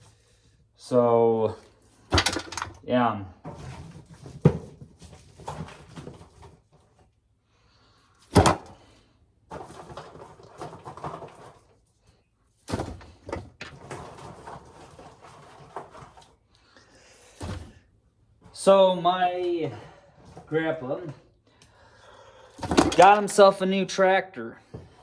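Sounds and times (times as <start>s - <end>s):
dry corn rustling and clattering: 2.2s - 2.8s, 22.8s - 23.5s.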